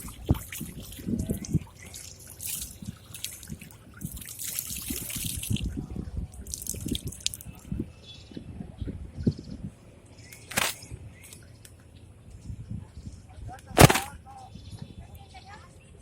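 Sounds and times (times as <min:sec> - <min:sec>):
water dripping and splashing: 0:00.0 - 0:05.8, 0:06.4 - 0:07.7.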